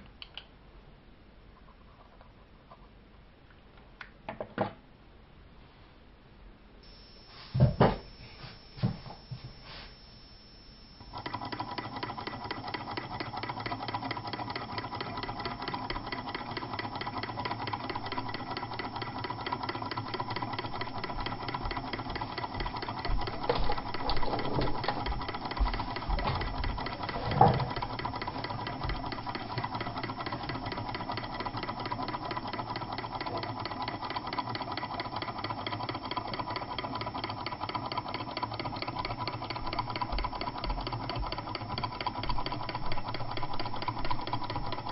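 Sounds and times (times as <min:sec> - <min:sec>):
small engine mechanical clatter: 0:11.1 - 0:44.9.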